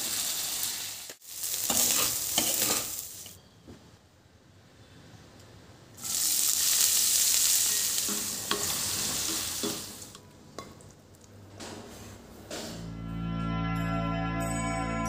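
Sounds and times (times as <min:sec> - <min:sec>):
food sizzling in hot oil: 0:00.0 - 0:03.4, 0:06.0 - 0:10.2.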